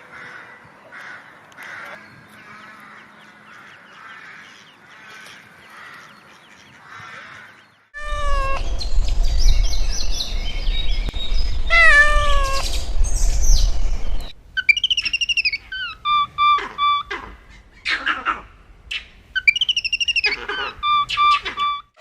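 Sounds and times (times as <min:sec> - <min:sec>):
cat meowing: 0:08.0 - 0:08.7, 0:11.7 - 0:12.7
low rumble: 0:08.0 - 0:14.4.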